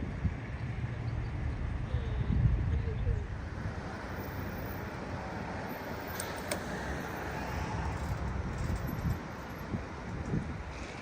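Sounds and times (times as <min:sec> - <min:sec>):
wind rumble on microphone: 0:00.0 - 0:04.4, 0:07.4 - 0:11.0
outdoor traffic noise: 0:00.0 - 0:11.0.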